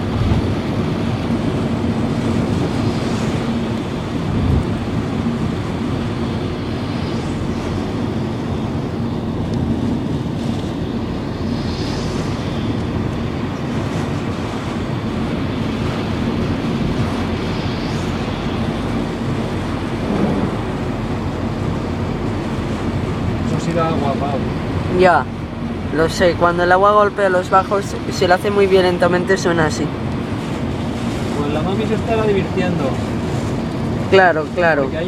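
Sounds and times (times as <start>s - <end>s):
water spray against car: 0.0s - 24.7s
car engine hum: 0.0s - 35.0s
heavy rain: 0.0s - 35.0s
tyres on flooded road: 0.0s - 35.0s.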